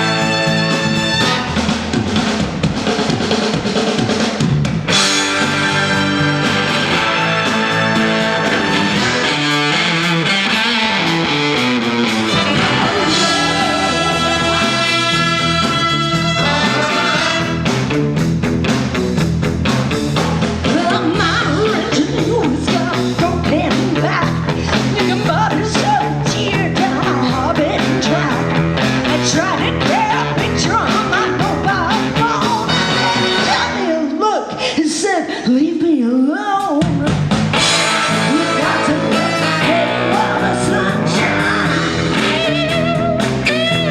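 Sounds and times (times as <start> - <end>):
electric guitar lead: 0.0 - 2.2, 4.8 - 34.0, 37.5 - 43.9
bass guitar: 0.0 - 34.0, 36.8 - 43.9
drums: 0.0 - 43.9.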